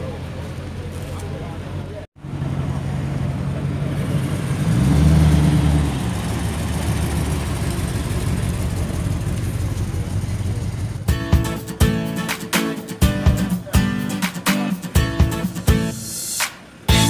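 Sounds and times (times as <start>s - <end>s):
car engine running: 0.0s - 12.3s.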